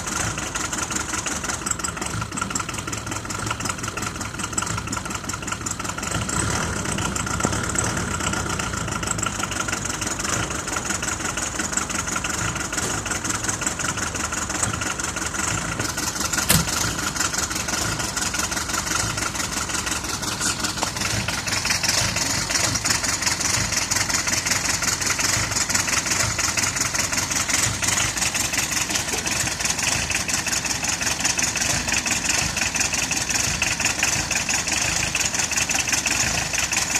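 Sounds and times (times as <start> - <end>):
diesel engine idling roughly: 0.0 - 36.9
sharp click: 16.4 - 16.8.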